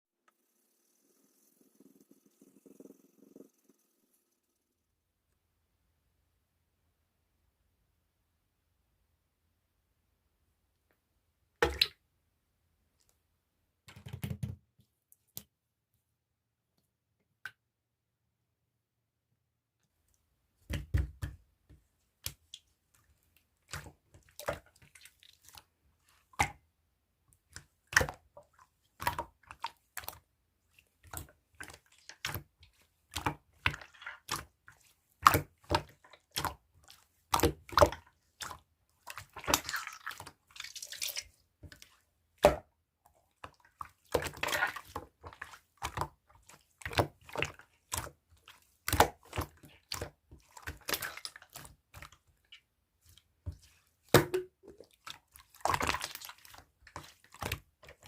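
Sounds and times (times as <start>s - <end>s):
wet slime squishes: 11.6s - 12.0s, 19.9s - 58.0s.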